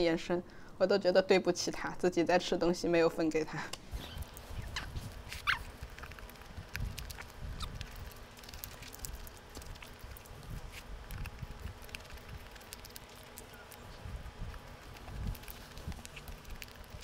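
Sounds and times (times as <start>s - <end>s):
person chewing burger: 4.2s - 17.0s.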